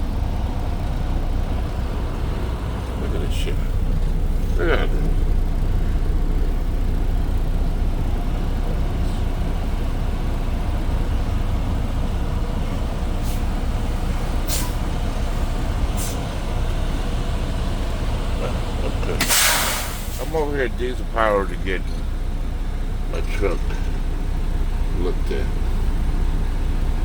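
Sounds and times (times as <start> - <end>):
diesel engine rumbling: 0.0 - 27.0
short high hisses: 19.2 - 20.3.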